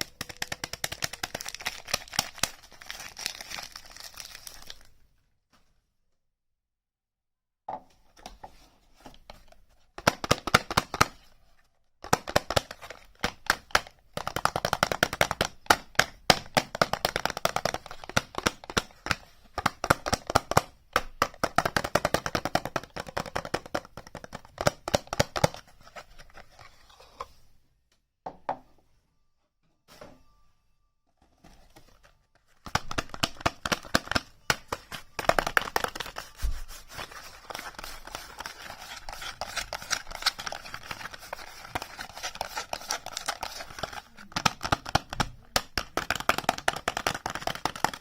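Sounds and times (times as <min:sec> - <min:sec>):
packaging crackling: 0:00.0 - 0:04.9, 0:32.5 - 0:45.1.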